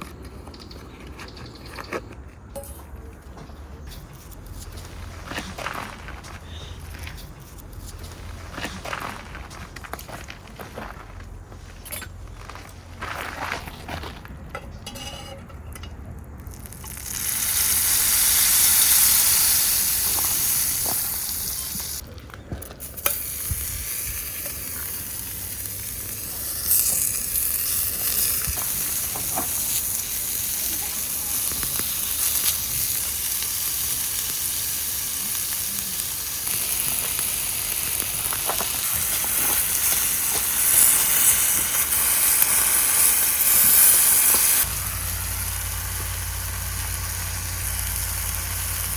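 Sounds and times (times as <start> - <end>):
food sizzling in a pan: 16.6 - 22.0, 22.9 - 48.9.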